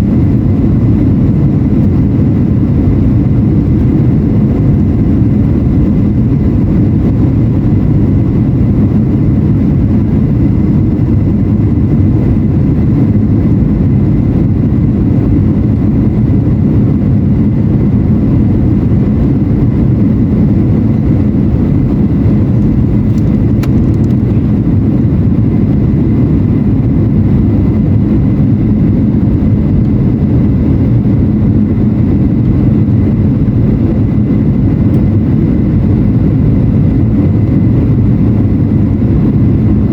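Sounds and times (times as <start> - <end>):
airflow over fuselage: 0.0 - 39.9
jet engine cabin roar: 0.0 - 39.9.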